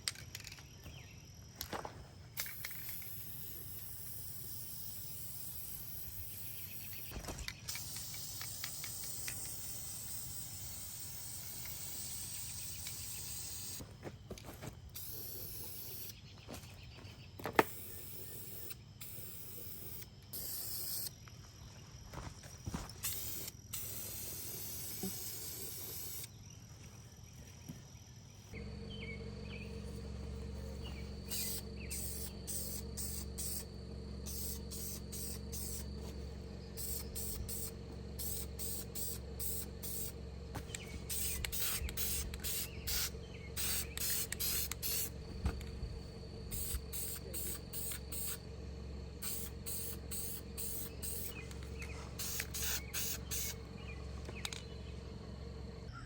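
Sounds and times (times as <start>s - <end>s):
steady low hum: 0.0s - 56.0s
short hissing bursts: 2.4s - 7.1s, 7.7s - 13.8s, 15.0s - 16.2s, 17.7s - 21.1s, 23.0s - 26.3s, 31.2s - 45.2s, 46.5s - 48.5s, 49.2s - 53.6s
hissing spray: 7.7s - 13.8s, 23.0s - 26.3s, 31.2s - 45.2s, 46.5s - 48.4s, 49.2s - 51.4s, 52.1s - 53.6s.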